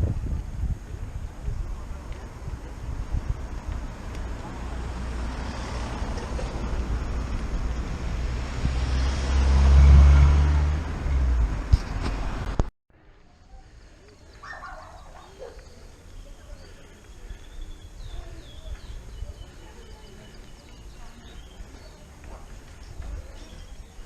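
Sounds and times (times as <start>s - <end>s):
faint indistinct voices: 0.0s - 6.8s, 13.0s - 24.0s
birds chirping: 13.5s - 24.0s.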